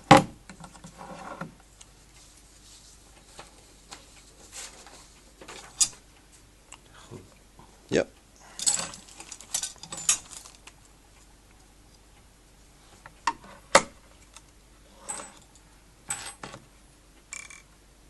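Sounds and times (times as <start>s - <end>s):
cabinet parts clicking and rattling: 4.6s - 6.0s, 8.6s - 10.8s, 13.2s - 16.7s.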